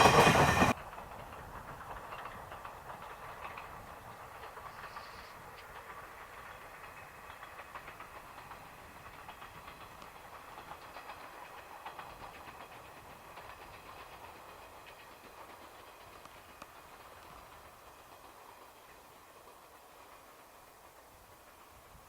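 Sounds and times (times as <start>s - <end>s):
train wheels clattering over rails: 0.0s - 22.0s.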